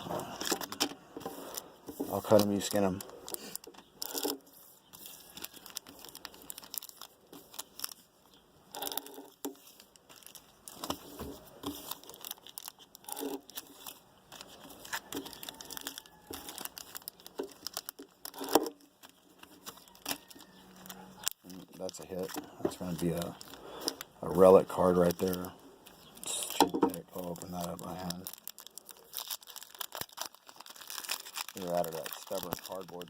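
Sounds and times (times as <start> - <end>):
card pack wrappers tearing and crinkling: 0.0 - 33.0.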